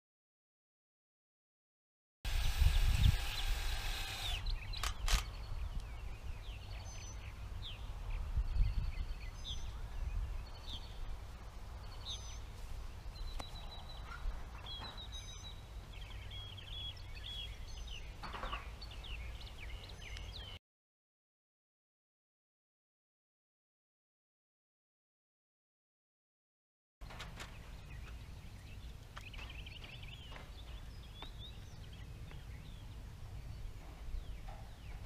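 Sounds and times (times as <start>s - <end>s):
sharp clicks: 2.3s - 5.4s
wind on microphone: 2.3s - 14.9s
birds chirping: 2.3s - 20.6s, 27.0s - 35.0s.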